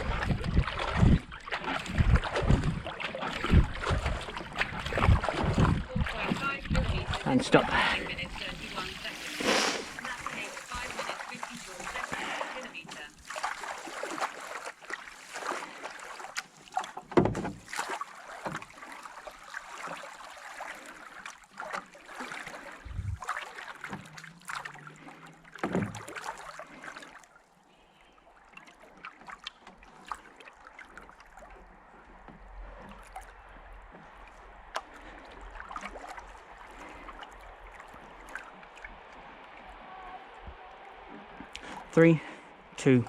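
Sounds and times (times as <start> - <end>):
water swishing and dripping: 0.0 - 43.0
dull knocks: 17.1 - 17.6.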